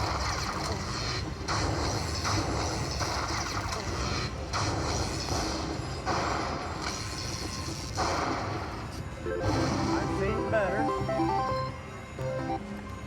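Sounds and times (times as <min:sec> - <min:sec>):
slot machine spin sounds: 0:09.2 - 0:12.6
casino background noise: 0:09.3 - 0:12.6.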